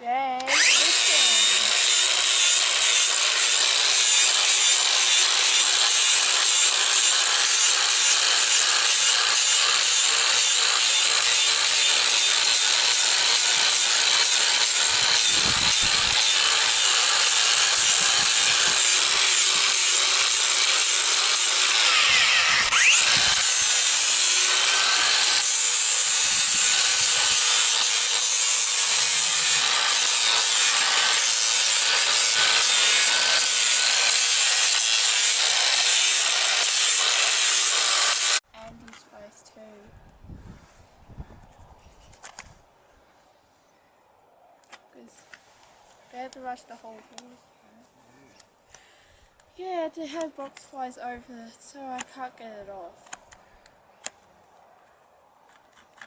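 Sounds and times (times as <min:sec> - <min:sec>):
grinder grinding hoof: 0:00.4 - 0:38.4.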